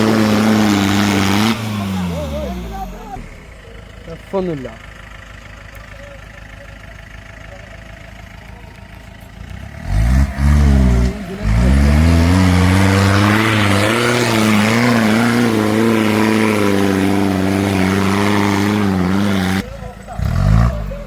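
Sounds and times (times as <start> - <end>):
engine revving at high revs: 0.0 - 3.5, 9.4 - 21.0.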